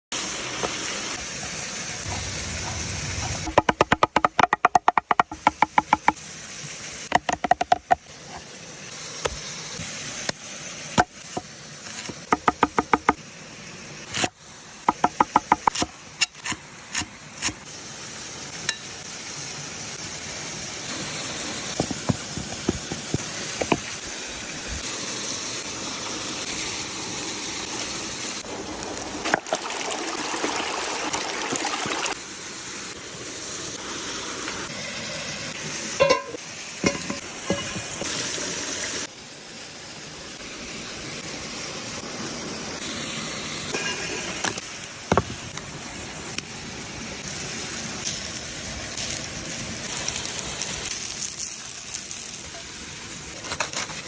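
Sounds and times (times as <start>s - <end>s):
food frying in a hot pan: 14.4s - 29.0s, 41.5s - 54.0s.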